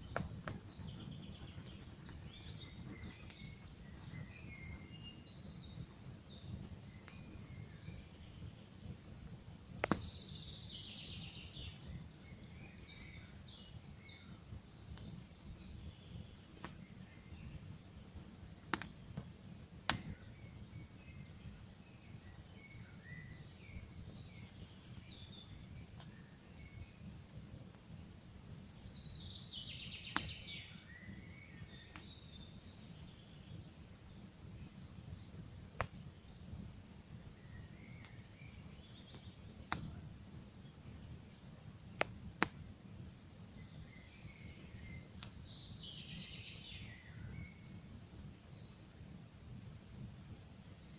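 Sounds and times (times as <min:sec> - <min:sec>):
campfire crackling and popping: 0:00.0 - 0:04.2, 0:08.8 - 0:10.2, 0:18.6 - 0:20.3, 0:30.1 - 0:30.6, 0:35.3 - 0:36.7, 0:39.1 - 0:43.6, 0:45.2 - 0:45.4
songbirds singing: 0:00.0 - 0:50.9.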